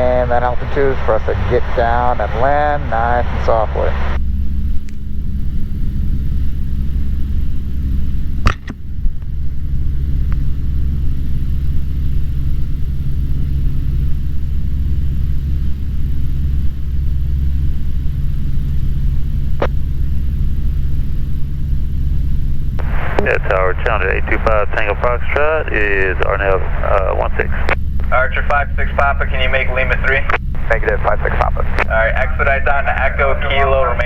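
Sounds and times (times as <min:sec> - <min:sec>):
aircraft engine and propeller drone: 0:00.0 - 0:34.0
sharp click: 0:08.5 - 0:08.8.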